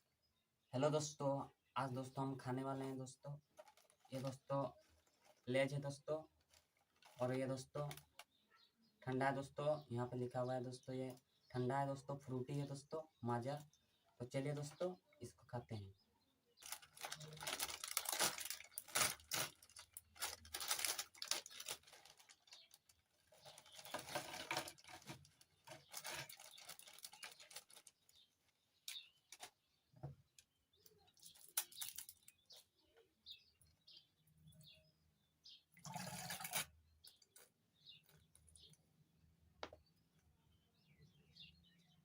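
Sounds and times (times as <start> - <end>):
plastic packet crinkling: 3.5 - 5.5, 6.3 - 8.2, 16.6 - 28.1, 31.2 - 32.4
packet tearing open: 16.6 - 22.5.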